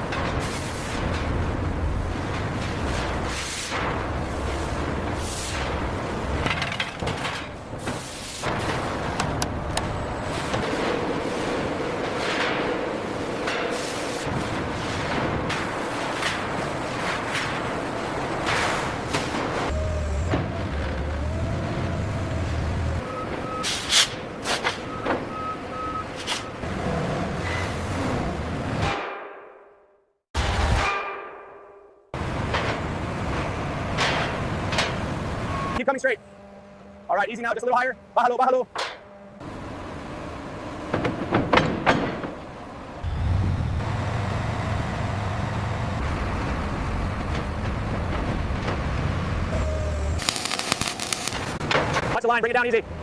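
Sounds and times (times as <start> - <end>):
heavy vehicle engine rumbling: 0.0 - 28.8, 39.0 - 53.0
reversing alarm beeps: 23.0 - 23.8, 24.8 - 26.6, 35.5 - 35.8
sharp metallic knocks: 30.7 - 32.0.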